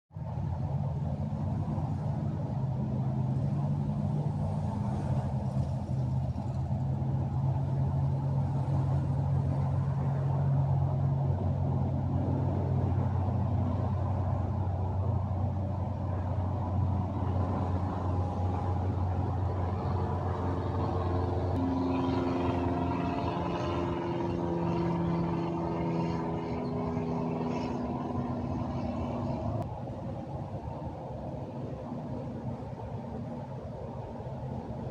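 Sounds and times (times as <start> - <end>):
train passing: 0.7 - 34.9
train running past: 16.1 - 28.3.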